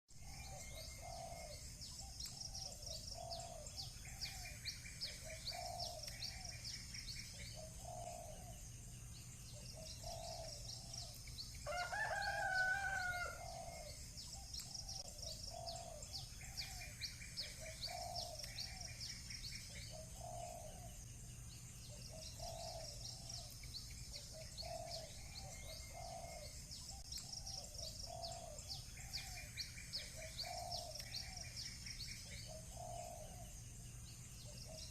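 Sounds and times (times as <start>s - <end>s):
small birds chirping: 0.1s - 34.9s
rooster crowing: 11.6s - 13.7s.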